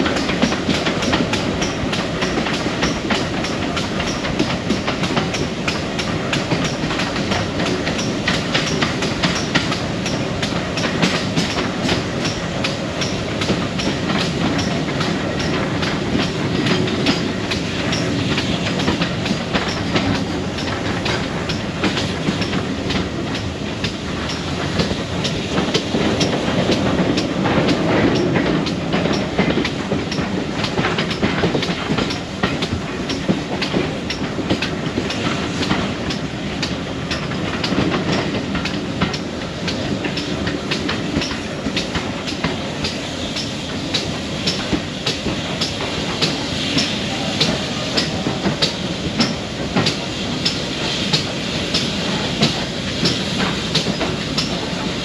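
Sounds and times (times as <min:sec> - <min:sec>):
train carriage rumble: 0:00.0 - 0:55.0
wheels clickety-clack over rail joints: 0:00.0 - 0:55.0.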